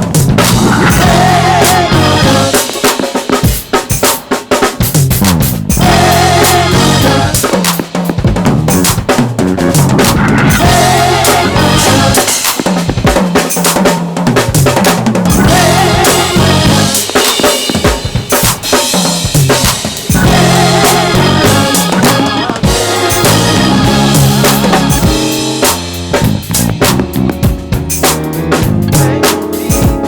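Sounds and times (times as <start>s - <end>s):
low bass notes: 0.0s - 2.5s, 5.1s - 7.4s, 8.3s - 12.2s, 15.3s - 17.0s, 20.2s - 30.0s
drum kit playing: 0.0s - 30.0s.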